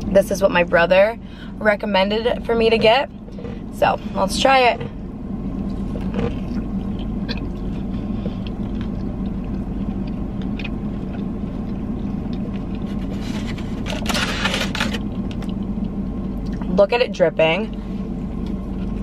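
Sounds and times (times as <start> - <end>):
low hum inside car: 0.0 - 19.0
person chewing: 5.6 - 13.8.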